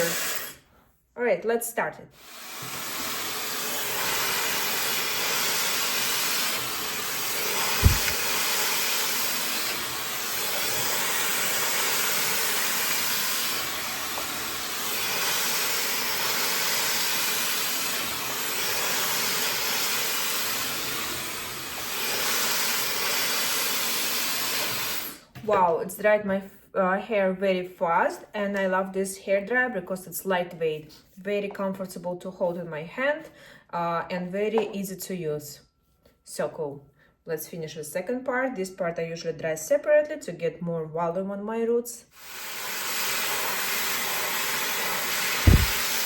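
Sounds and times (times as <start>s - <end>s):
hair dryer blowing: 0.0s - 0.6s, 2.2s - 25.2s, 42.2s - 46.0s
brief knock: 7.8s - 8.2s, 45.5s - 45.8s.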